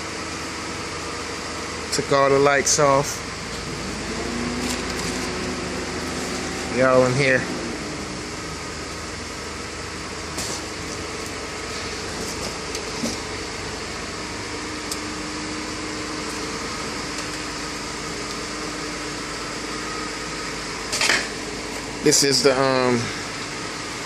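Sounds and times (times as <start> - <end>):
mechanical whirring hum: 0.0 - 24.0.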